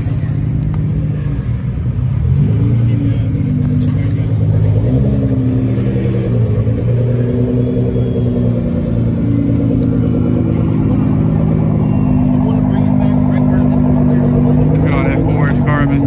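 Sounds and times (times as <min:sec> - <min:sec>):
car engine running at low revs: 0:00.0 - 0:16.0.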